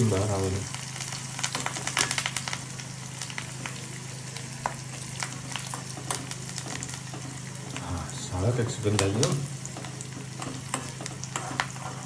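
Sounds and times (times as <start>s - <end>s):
vegetables sizzling in oil: 0.0s - 12.0s
metal spoon scraping a pan: 10.4s - 12.0s.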